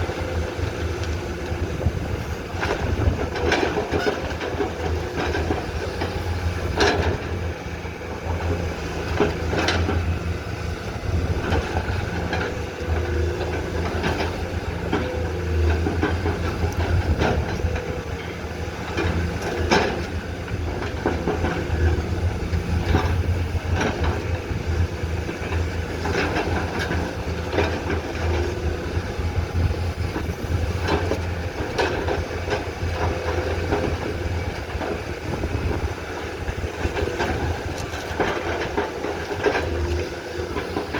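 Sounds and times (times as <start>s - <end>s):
excavator diesel engine running: 0.0s - 40.9s
excavator bucket clanks and knocks: 11.2s - 20.2s.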